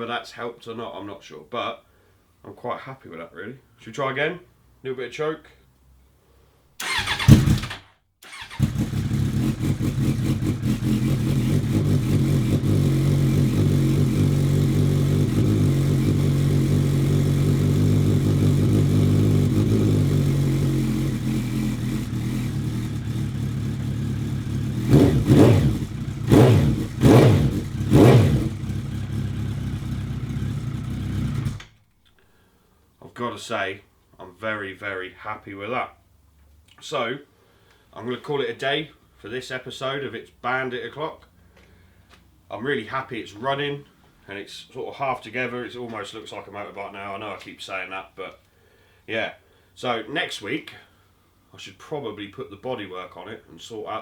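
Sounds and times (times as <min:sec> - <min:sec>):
motorcycle starter motor: 0:06.8 - 0:14.4, 0:21.0 - 0:31.8
motorcycle engine idling: 0:06.8 - 0:31.7.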